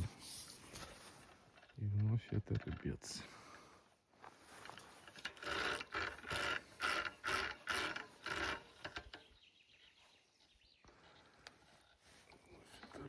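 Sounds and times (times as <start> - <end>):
fishing reel ratcheting whir: 5.1 - 9.2.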